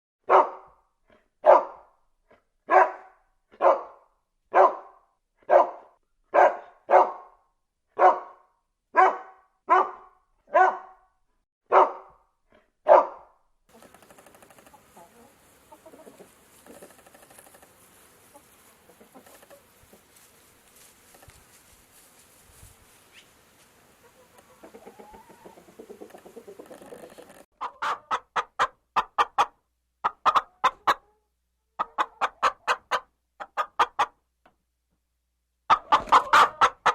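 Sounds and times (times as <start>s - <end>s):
dog barking: 0.2s - 0.8s, 1.4s - 1.9s, 2.7s - 7.4s, 8.0s - 11.1s, 11.7s - 12.2s, 12.8s - 13.4s.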